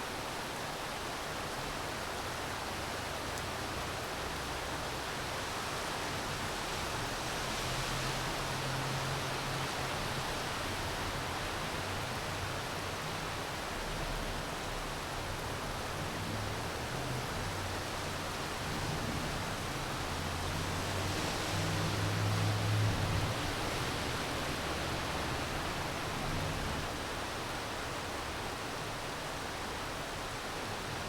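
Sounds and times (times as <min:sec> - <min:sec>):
steady rain falling: 0:00.0 - 0:31.0.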